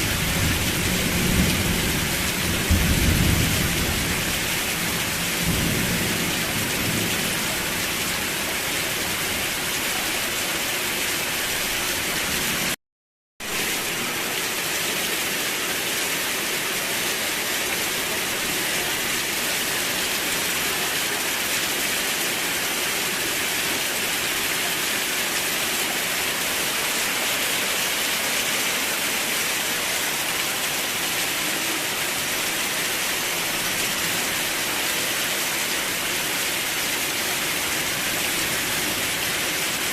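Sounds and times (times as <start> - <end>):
rain hiss: 0.0 - 12.8, 13.4 - 39.9
low rumble of thunder: 0.2 - 7.6.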